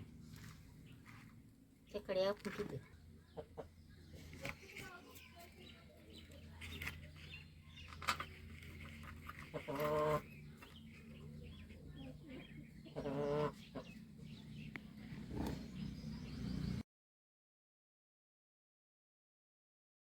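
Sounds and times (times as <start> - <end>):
faint clucking: 3.2 - 5.0, 9.2 - 14.0
drawn-out animal calls: 8.2 - 16.8.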